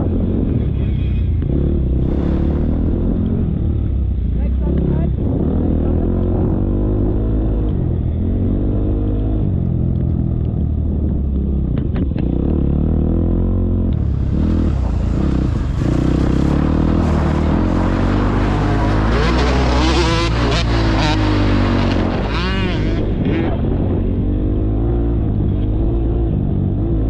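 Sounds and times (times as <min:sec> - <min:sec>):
motocross bike engine revving: 0:00.0 - 0:03.8, 0:11.9 - 0:27.0.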